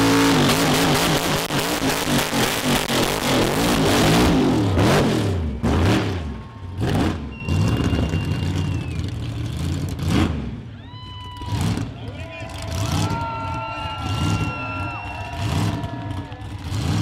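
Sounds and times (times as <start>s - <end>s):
car engine revving: 0.0s - 10.7s, 15.3s - 17.0s.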